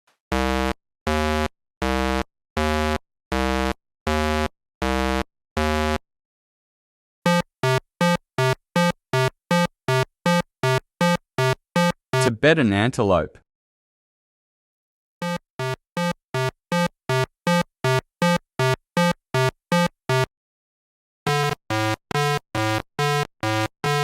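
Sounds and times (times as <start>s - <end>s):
synthesized buzzer tones: 0.3s - 6.0s, 7.3s - 12.3s, 15.2s - 20.3s, 21.3s - 24.0s.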